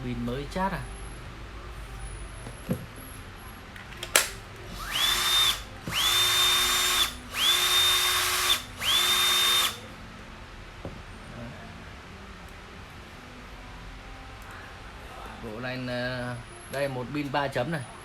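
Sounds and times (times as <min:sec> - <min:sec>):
sharp click: 0:03.9 - 0:04.4
cordless drill motor whining: 0:04.7 - 0:09.8.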